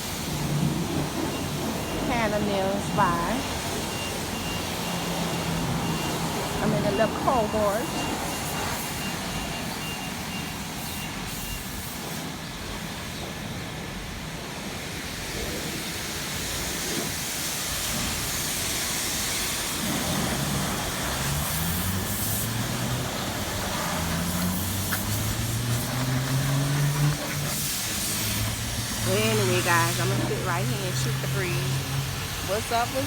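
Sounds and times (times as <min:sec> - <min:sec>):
vehicle engine running: 0:00.0 - 0:08.8, 0:20.0 - 0:33.0.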